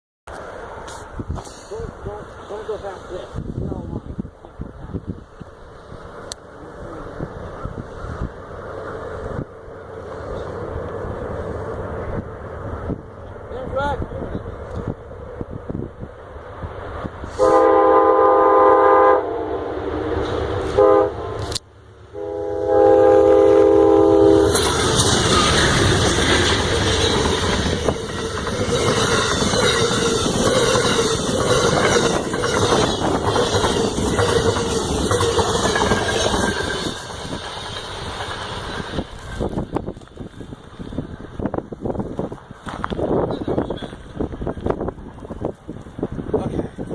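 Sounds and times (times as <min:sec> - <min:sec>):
train horn blasts: 0:17.3 - 0:19.9, 0:20.6 - 0:24.8
train wheel clatter: 0:24.3 - 0:46.9.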